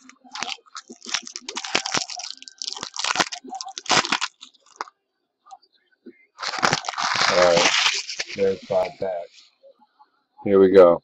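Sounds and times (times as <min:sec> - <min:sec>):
plastic and cardboard crinkling: 0:00.0 - 0:04.9, 0:06.4 - 0:09.3.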